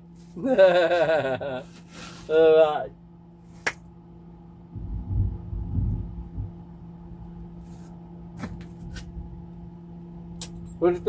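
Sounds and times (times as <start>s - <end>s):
microwave oven humming: 0.0s - 11.0s
low rumbling: 4.4s - 10.8s.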